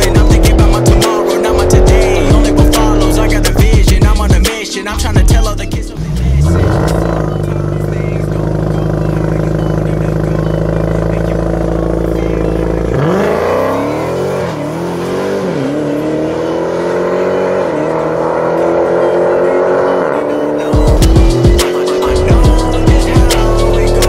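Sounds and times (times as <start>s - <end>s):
car engine revving: 0.0s - 24.0s
car accelerating through gears: 6.0s - 9.0s, 9.8s - 24.0s.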